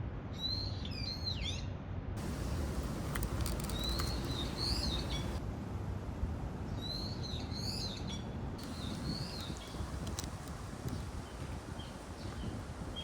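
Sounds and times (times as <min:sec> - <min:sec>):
low background noise: 0:01.9 - 0:13.0
small birds chirping: 0:02.2 - 0:05.4, 0:06.7 - 0:13.0.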